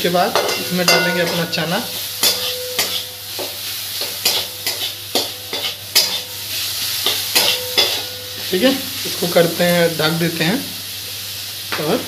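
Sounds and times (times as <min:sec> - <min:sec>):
onions sizzling in oil: 0:00.0 - 0:12.0
metal spatula scraping pan: 0:00.4 - 0:06.4, 0:07.0 - 0:08.2.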